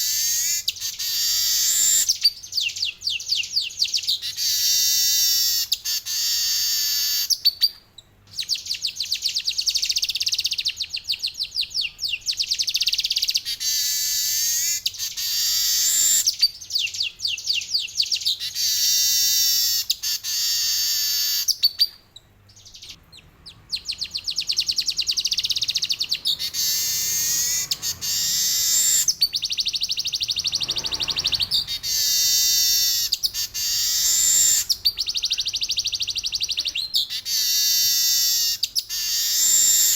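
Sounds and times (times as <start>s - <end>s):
weaver bird singing buzzy trills: 0.0s - 39.9s.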